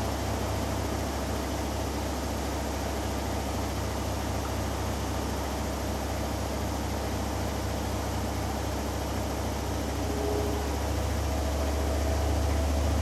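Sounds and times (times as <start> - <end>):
washing machine spinning: 6.1 - 13.0.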